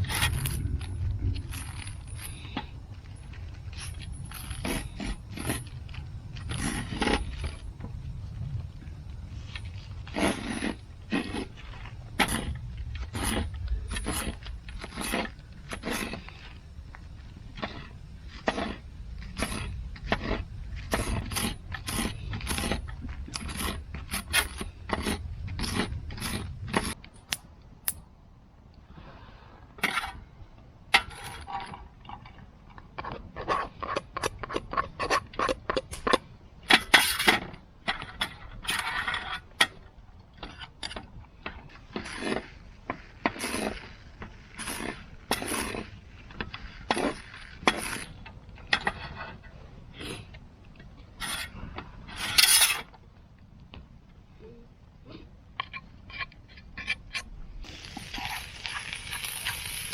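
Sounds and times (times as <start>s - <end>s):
hand tool scraping wood: 9.4s - 16.6s, 17.6s - 27.0s, 41.6s - 50.4s, 51.1s - 52.9s.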